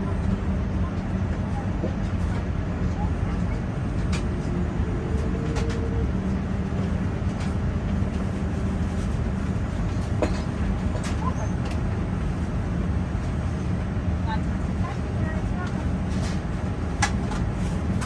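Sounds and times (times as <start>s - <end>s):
aircraft cabin rumble and hum: 0.0s - 18.0s.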